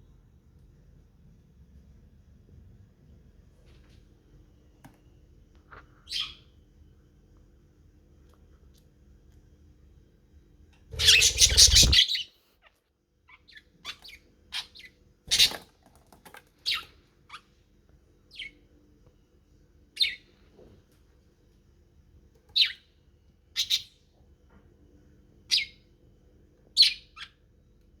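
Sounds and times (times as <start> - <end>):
budgerigars chirping: 11.0 - 12.2.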